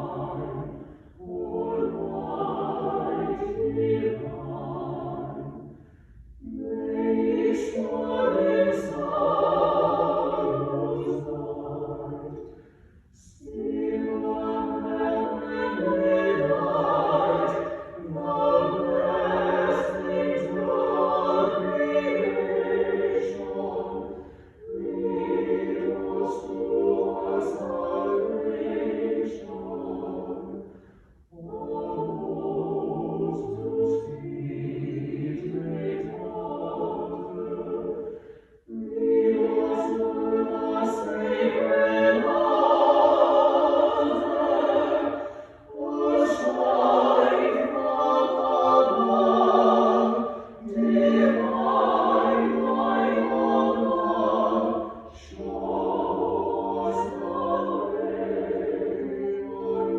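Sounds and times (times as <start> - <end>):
choir singing held notes: 0.0 - 5.7, 6.4 - 12.5, 13.2 - 59.9
breaths: 0.8 - 1.2, 5.7 - 6.4, 12.4 - 13.3, 24.1 - 24.6, 30.6 - 31.3, 38.0 - 38.7, 45.2 - 45.7.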